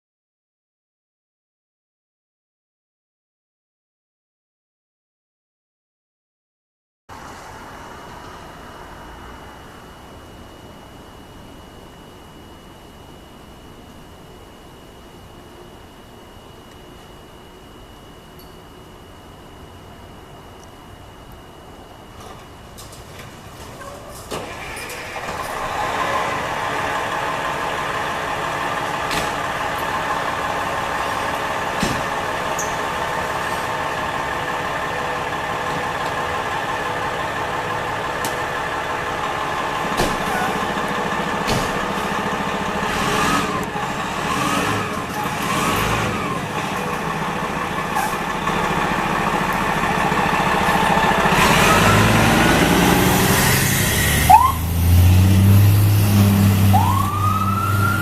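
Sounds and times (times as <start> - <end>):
fire engine diesel engine running: 20.1 - 58.0.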